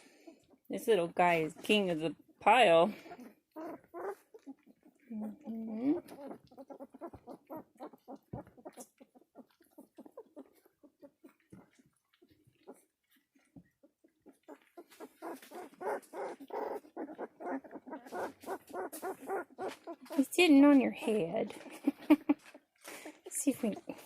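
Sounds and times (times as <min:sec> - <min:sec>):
puppies clicking and smacking: 0:01.5 - 0:24.0
puppy whimpers: 0:03.0 - 0:20.2.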